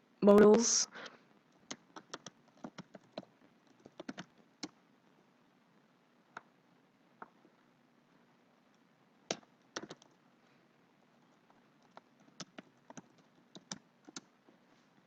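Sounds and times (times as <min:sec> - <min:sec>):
computer keyboard keystrokes: 0:01.6 - 0:04.8, 0:09.3 - 0:10.2, 0:11.4 - 0:14.3.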